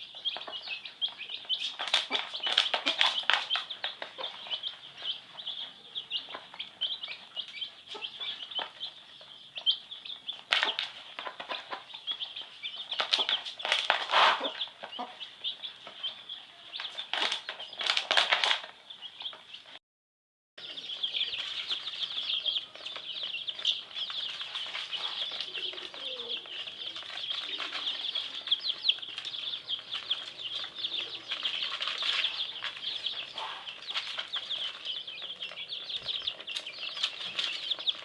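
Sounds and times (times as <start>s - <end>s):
chicks peeping: 0.0s - 19.8s, 20.6s - 38.0s
scratchy rustling noises: 12.9s - 15.0s, 21.2s - 38.0s.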